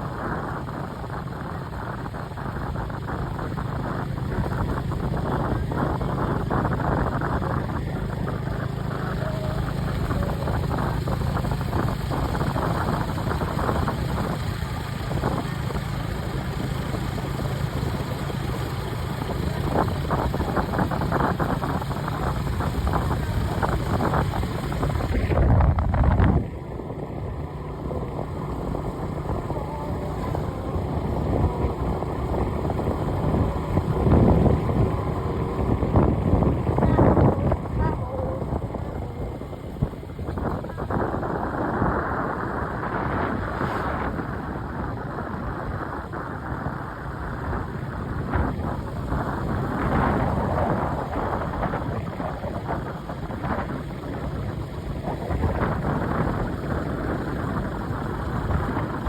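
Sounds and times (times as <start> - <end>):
vehicle engine running: 0.0 - 59.0
rough rushing noise: 21.3 - 46.4.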